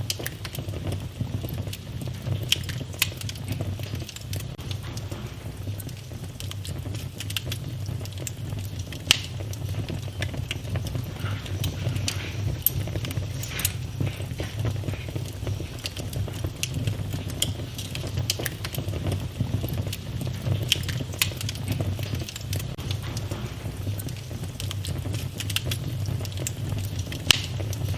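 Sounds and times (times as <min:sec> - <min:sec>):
low rumble of flames: 0:00.0 - 0:27.9
wood fire crackling and popping: 0:00.0 - 0:27.9.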